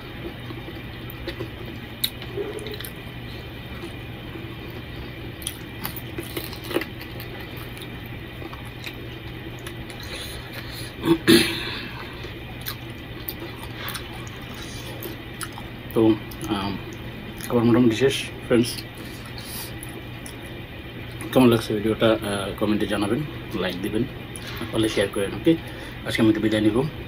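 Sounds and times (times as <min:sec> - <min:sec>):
man chewing wetly: 0:00.0 - 0:11.0, 0:11.8 - 0:17.6, 0:18.7 - 0:21.3.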